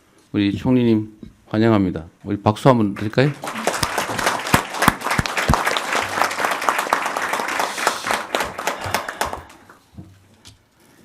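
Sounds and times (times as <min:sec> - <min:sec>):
people applauding: 0:03.0 - 0:09.8.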